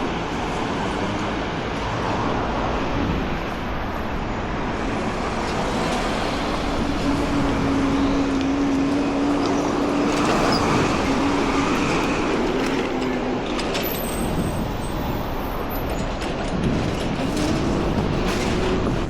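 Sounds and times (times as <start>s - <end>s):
cars and buses rushing past: 0.0s - 19.0s
engine drone: 0.0s - 19.0s
engine climbing in pitch: 4.7s - 14.5s.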